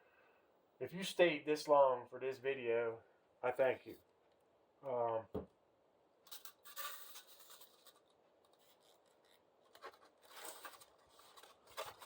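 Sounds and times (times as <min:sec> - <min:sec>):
faint scraping and rubbing: 0:06.3 - 0:12.0.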